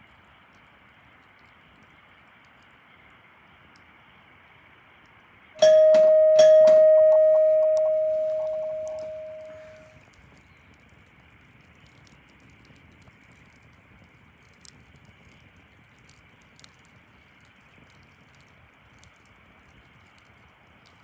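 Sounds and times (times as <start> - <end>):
small crackles and clicks: 0.0 - 21.0
faint background hiss: 5.6 - 10.0.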